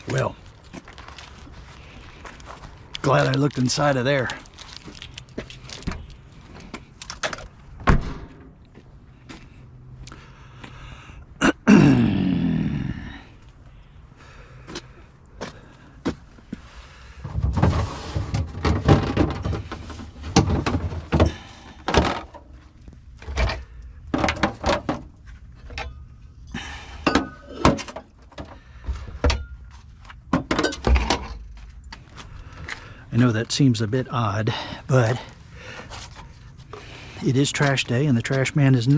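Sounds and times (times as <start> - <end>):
refrigerator scraping: 17.2 - 21.4
refrigerator knocks and thuds: 17.2 - 22.3.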